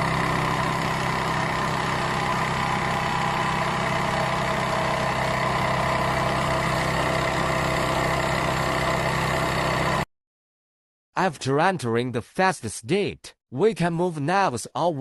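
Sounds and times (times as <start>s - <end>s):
foam cutting machine humming: 0.0s - 10.1s.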